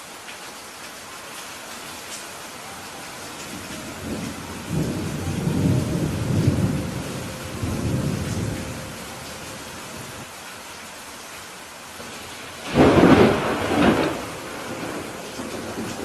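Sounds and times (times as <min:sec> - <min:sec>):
steady rain hissing: 0:00.0 - 0:16.0
thunder rumbling: 0:03.4 - 0:10.3, 0:12.1 - 0:16.0.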